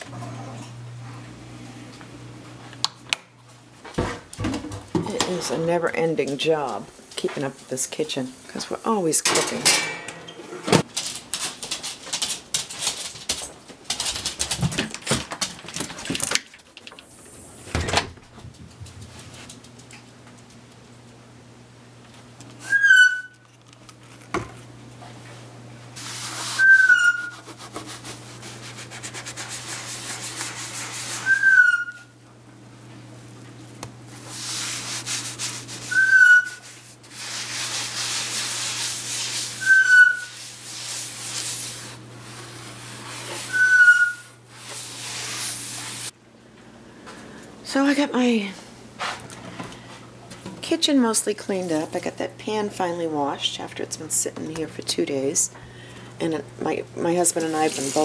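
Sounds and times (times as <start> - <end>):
pan being scrubbed: 26.0 - 31.8, 34.1 - 46.1, 57.2 - 58.0
high squeaks: 26.6 - 27.4.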